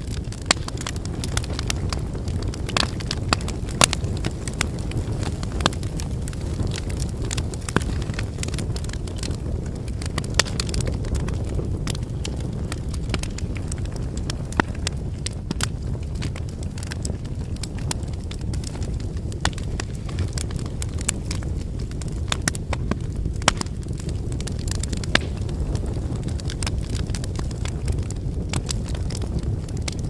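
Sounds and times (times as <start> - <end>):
firewood crackling and popping: 0.0 - 30.0
flames rushing: 0.0 - 30.0.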